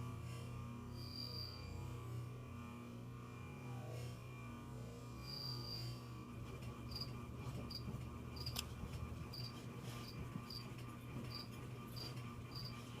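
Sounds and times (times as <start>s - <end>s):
steady low hum: 0.0s - 13.0s
cricket chirping: 1.0s - 1.7s, 5.2s - 5.9s, 9.3s - 9.5s, 11.3s - 12.8s.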